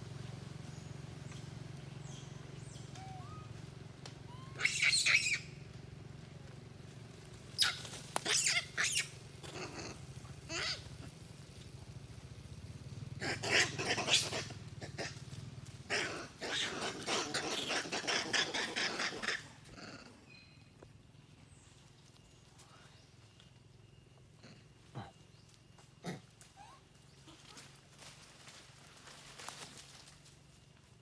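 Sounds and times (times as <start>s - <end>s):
steady low hum: 0.0s - 31.0s
monkeys giving harsh calls: 2.9s - 3.6s, 4.2s - 5.5s, 7.6s - 11.2s, 13.2s - 20.0s.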